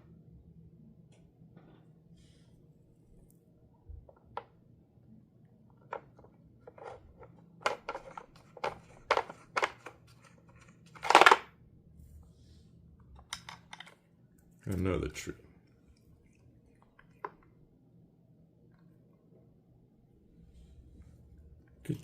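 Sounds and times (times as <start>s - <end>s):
plastic puzzle toy clacking: 5.8s - 11.5s.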